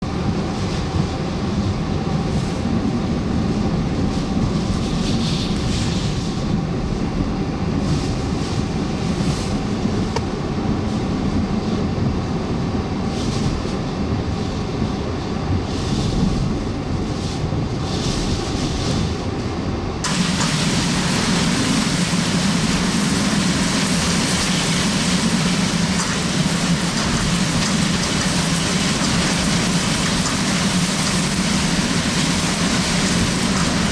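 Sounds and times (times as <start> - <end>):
hurricane winds: 0.0 - 33.9
heavy rain: 20.0 - 33.9.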